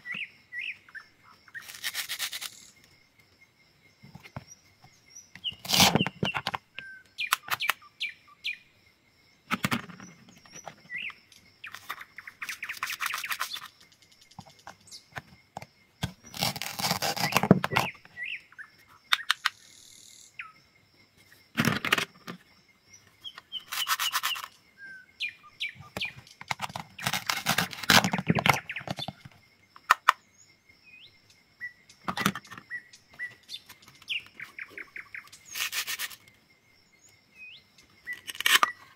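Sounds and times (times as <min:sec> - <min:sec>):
birds chirping faintly: 0:00.0 - 0:38.9
knife cutting: 0:01.6 - 0:02.6, 0:05.6 - 0:06.4, 0:16.0 - 0:17.9, 0:26.6 - 0:28.3, 0:38.2 - 0:38.7.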